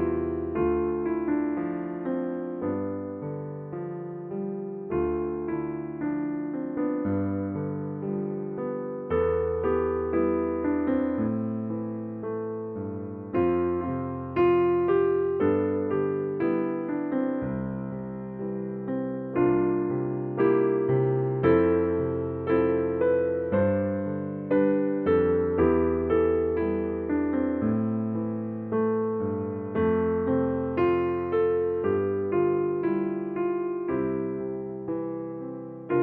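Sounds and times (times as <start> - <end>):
electric piano chords: 0.0 - 36.0.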